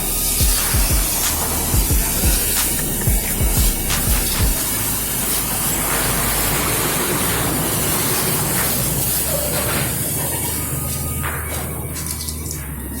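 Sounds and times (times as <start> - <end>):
high-pressure water jet spraying: 0.0 - 13.0.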